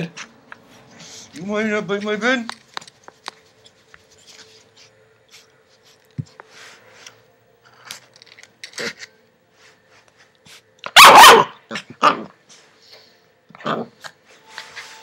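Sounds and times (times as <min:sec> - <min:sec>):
puppy play-biting and scuffling: 0:00.0 - 0:08.1, 0:13.5 - 0:15.0.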